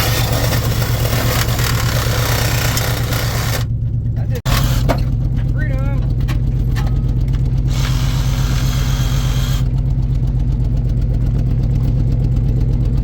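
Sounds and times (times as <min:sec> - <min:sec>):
truck engine droning: 0:00.0 - 0:13.0.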